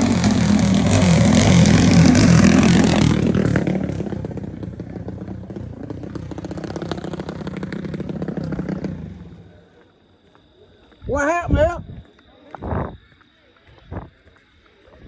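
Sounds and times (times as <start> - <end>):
drag racing engines at full throttle: 0.0 - 9.9.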